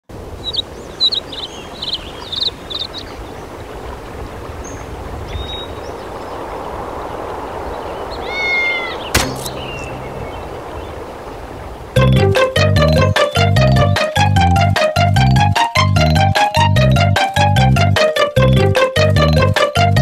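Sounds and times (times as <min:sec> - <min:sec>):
bird chirps: 0:00.4 - 0:03.2, 0:07.7 - 0:11.1
gliding bird call: 0:08.1 - 0:11.4
sharp click: 0:09.2 - 0:09.9.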